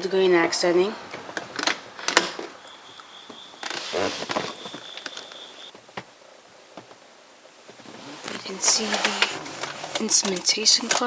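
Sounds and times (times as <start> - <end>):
rustle: 1.0 - 11.0.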